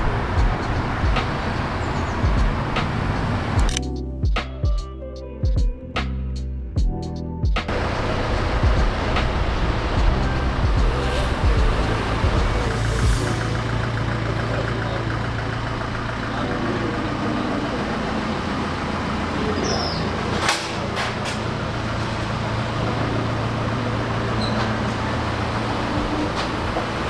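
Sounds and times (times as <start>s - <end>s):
road traffic rumble: 0.0s - 4.0s, 7.7s - 27.0s
sharp clicks: 2.8s - 3.9s.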